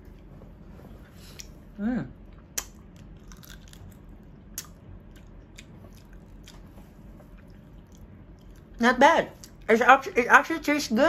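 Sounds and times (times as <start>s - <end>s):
person chewing raw crab: 2.3s - 8.7s.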